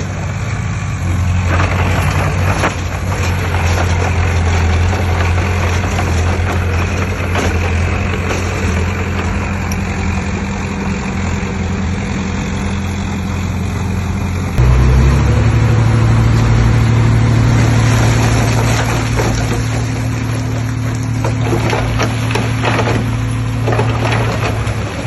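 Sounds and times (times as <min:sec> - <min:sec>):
heavy diesel engine revving: 0:00.0 - 0:25.0.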